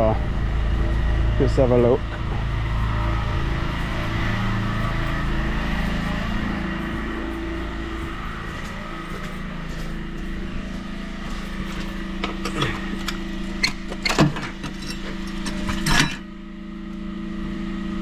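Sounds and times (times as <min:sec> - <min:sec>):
pressure-washer engine humming: 0:00.0 - 0:18.0
crowbar scraping metal grate: 0:11.3 - 0:16.3.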